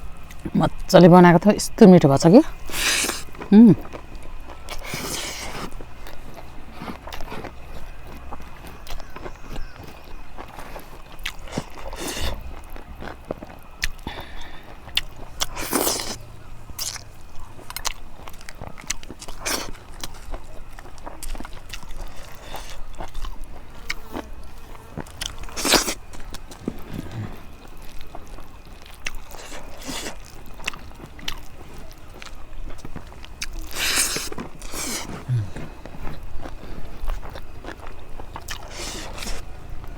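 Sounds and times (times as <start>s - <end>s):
person chewing food: 0.0s - 0.8s, 2.5s - 39.9s.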